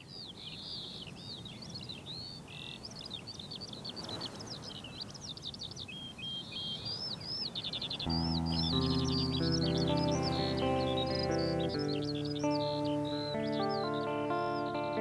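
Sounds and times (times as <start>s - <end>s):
birds chirping and singing: 0.0s - 15.0s.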